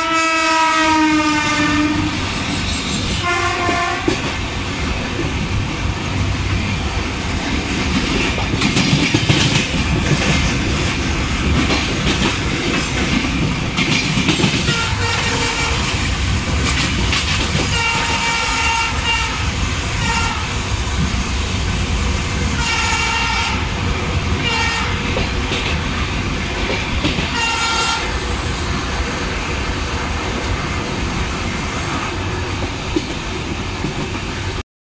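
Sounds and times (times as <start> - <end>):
train horn blasts: 0.0 - 2.2, 3.1 - 4.2, 14.6 - 16.0, 17.6 - 20.6, 22.5 - 23.7, 24.4 - 25.0, 27.3 - 28.1
train rumbling and clattering: 0.0 - 34.6.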